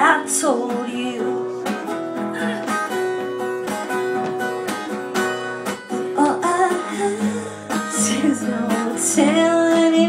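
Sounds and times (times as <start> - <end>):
woman singing: 0.0 - 2.0, 5.9 - 10.0
acoustic guitar strumming: 0.0 - 10.0.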